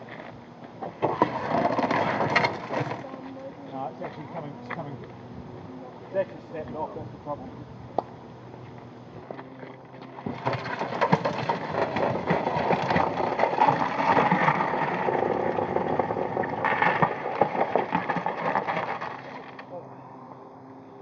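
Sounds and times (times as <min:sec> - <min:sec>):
car part scraping road: 0:00.0 - 0:03.1, 0:08.5 - 0:19.7.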